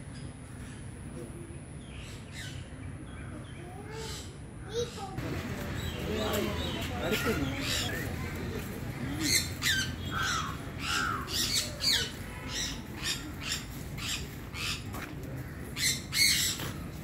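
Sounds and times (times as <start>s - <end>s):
birds squawking: 3.9s - 17.0s.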